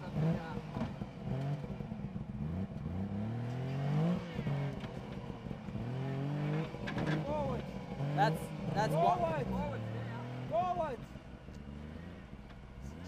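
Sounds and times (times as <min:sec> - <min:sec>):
car engine revving under load: 0:00.0 - 0:13.0.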